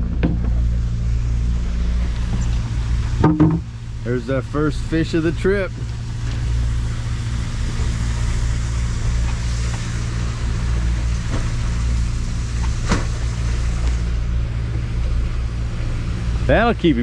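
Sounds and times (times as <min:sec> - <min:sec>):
boat engine running: 0:00.0 - 0:17.0
short knocks: 0:03.2 - 0:03.7.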